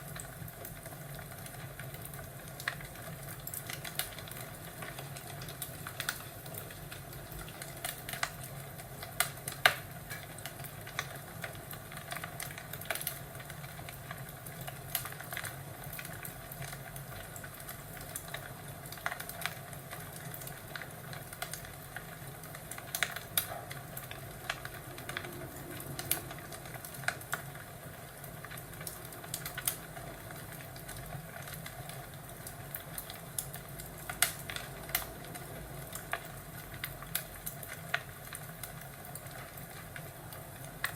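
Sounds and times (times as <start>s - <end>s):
wood fire crackling: 0.0s - 40.9s
steady low hiss: 19.0s - 40.9s.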